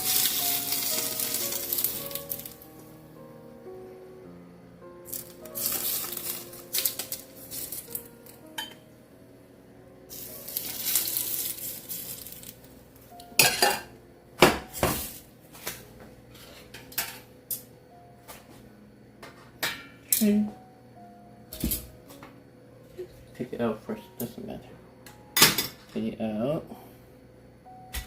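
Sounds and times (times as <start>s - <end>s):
garlic sizzling in hot oil: 0.0s - 2.7s, 5.1s - 8.0s, 10.1s - 12.6s
soft background music: 0.0s - 28.0s.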